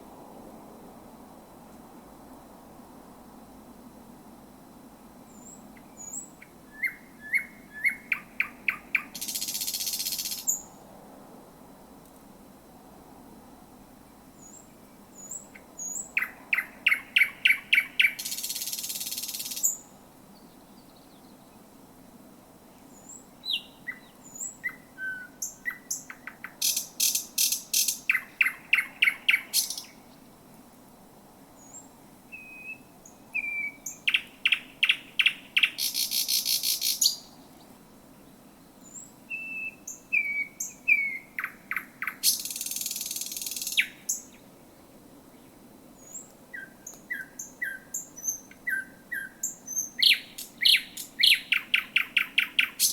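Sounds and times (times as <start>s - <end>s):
bird song with harsh rattle: 5.4s - 10.6s, 14.4s - 19.8s, 25.4s - 30.0s, 33.6s - 37.3s, 39.9s - 44.4s, 46.1s - 52.9s.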